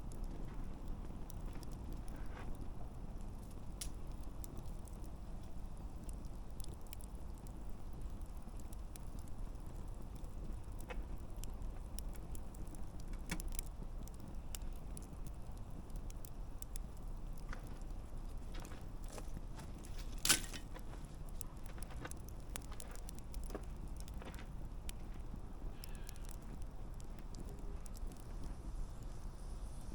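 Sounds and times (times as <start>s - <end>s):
campfire crackling: 0.0s - 29.9s
fire low rush: 0.0s - 29.9s.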